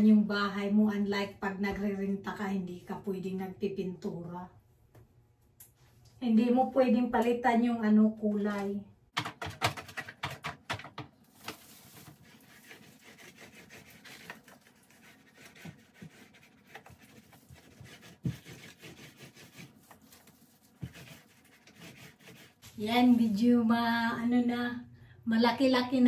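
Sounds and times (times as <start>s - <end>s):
applicator rubbing on wood: 12.3s - 22.6s.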